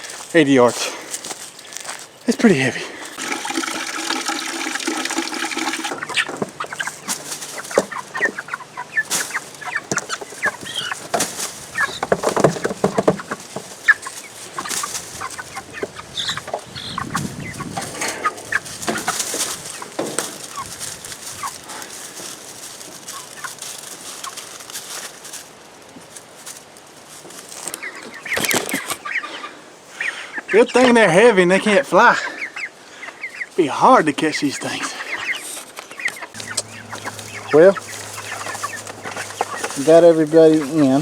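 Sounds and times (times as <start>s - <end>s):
chickens clucking: 0.0s - 41.0s
knocks and rustles: 5.9s - 25.1s.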